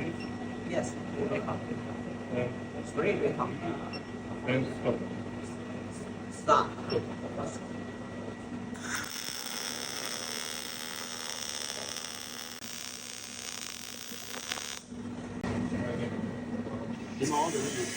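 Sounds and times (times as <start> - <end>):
welding arc hissing: 8.8 - 14.9, 17.2 - 17.9.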